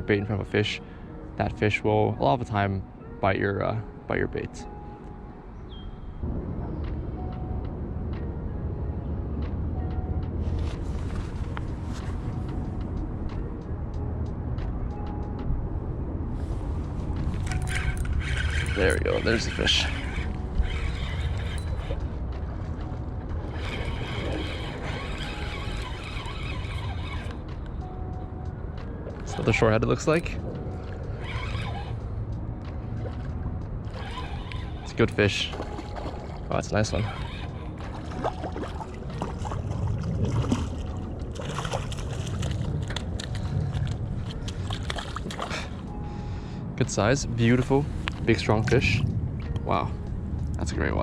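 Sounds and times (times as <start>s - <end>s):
low rumble: 6.1s - 35.7s
water sloshing and splashing: 10.4s - 13.4s, 16.4s - 28.0s, 28.7s - 46.0s
river current rushing: 17.3s - 27.4s, 33.8s - 45.9s.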